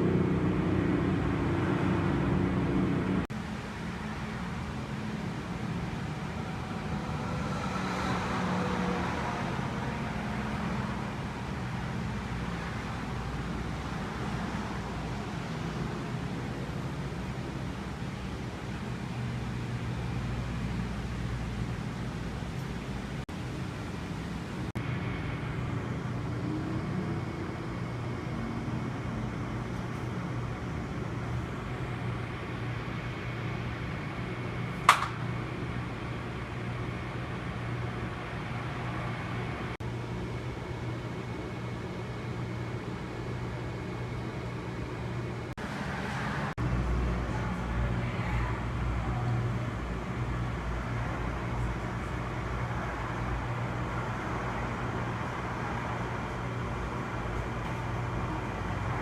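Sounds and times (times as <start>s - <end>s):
vehicle engine hum from inside: 0.0s - 23.4s
sharp click: 34.8s - 35.3s.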